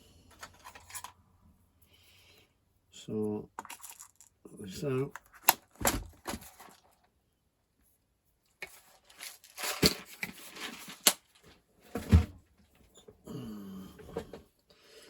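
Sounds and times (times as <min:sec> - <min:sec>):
rustling and tearing: 0:08.6 - 0:11.6.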